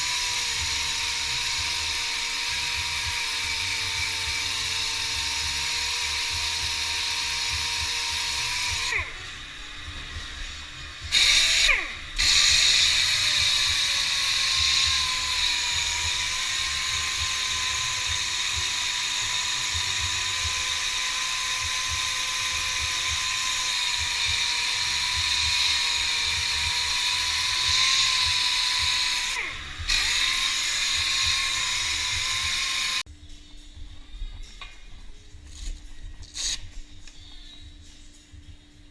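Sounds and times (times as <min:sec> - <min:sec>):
power tool whining: 0:00.0 - 0:33.1.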